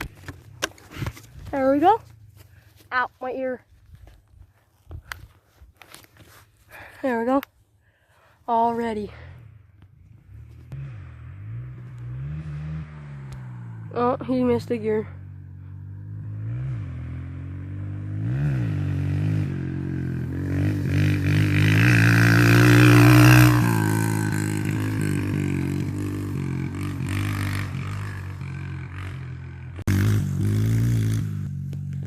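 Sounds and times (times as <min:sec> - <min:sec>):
dirt bike engine revving: 0:10.2 - 0:32.0.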